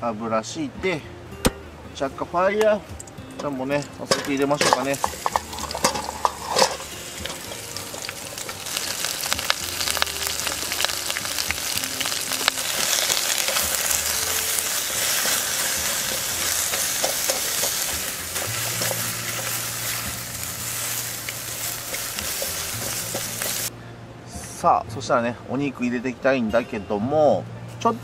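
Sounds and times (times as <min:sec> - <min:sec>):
onions sizzling in hot oil: 0:03.0 - 0:23.7
spoon stirring in pot: 0:03.4 - 0:09.3, 0:12.7 - 0:23.7
onion pieces knocking into pot: 0:03.4 - 0:10.6.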